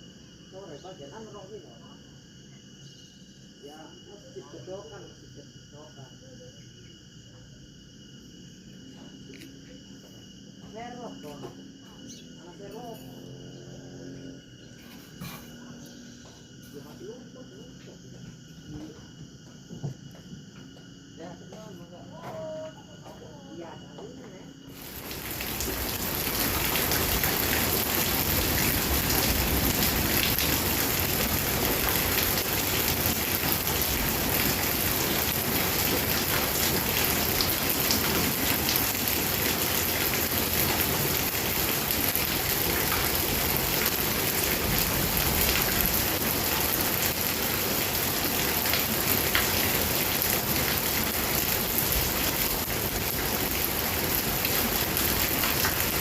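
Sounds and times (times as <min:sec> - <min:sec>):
heavy rain pouring: 0:24.7 - 0:56.0.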